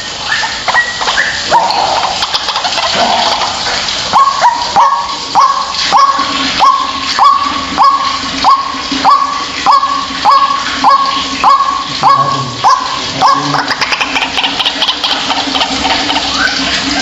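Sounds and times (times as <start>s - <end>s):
bird calling repeated notes: 5.4s - 14.9s.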